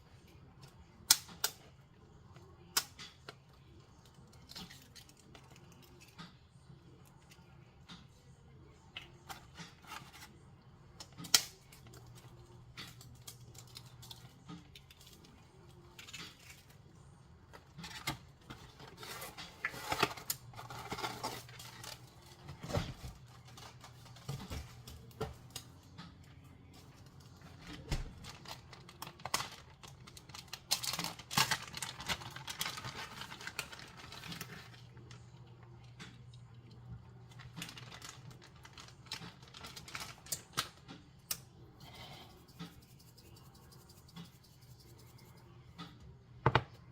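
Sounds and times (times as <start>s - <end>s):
faint low hum: 0.0s - 46.9s
small objects clicking and rustling: 28.2s - 35.2s.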